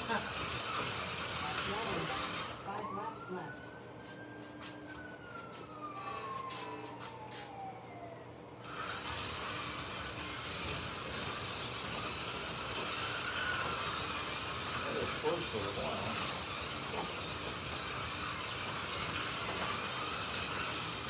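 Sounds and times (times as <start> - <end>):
slot cars whirring: 0.0 - 3.0, 8.6 - 21.0
electric motor whine: 0.0 - 7.6, 8.6 - 21.0.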